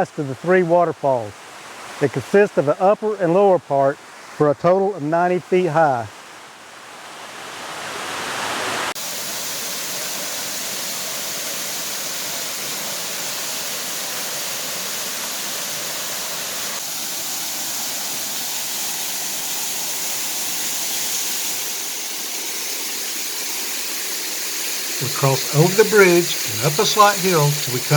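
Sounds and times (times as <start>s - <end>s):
waterfall roaring: 25.0s - 27.9s.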